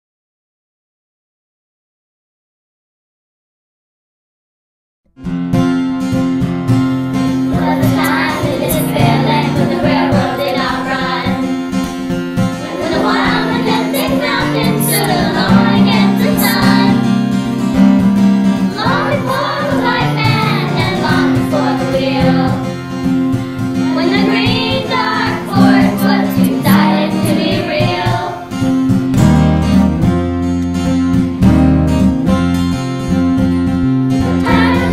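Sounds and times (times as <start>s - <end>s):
bass line: 5.2s - 34.9s
strummed acoustic guitar: 5.2s - 34.9s
children's choir singing: 7.4s - 17.2s, 18.7s - 28.6s, 34.3s - 34.9s.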